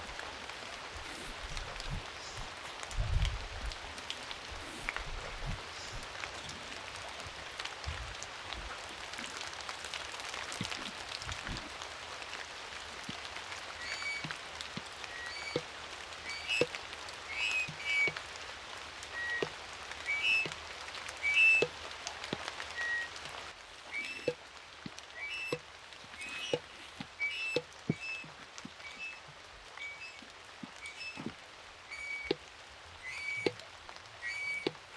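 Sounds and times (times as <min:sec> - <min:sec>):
rain with drops tapping: 0:00.0 - 0:34.9
short high chirping calls: 0:01.0 - 0:02.5, 0:13.8 - 0:14.2, 0:15.1 - 0:15.6, 0:16.2 - 0:16.7, 0:17.3 - 0:18.1, 0:19.2 - 0:19.5, 0:20.1 - 0:20.5, 0:21.2 - 0:21.6, 0:22.7 - 0:23.2, 0:23.9 - 0:24.4, 0:25.2 - 0:25.6, 0:26.2 - 0:29.2, 0:29.8 - 0:31.3, 0:31.9 - 0:32.4, 0:33.0 - 0:33.5, 0:34.2 - 0:34.7.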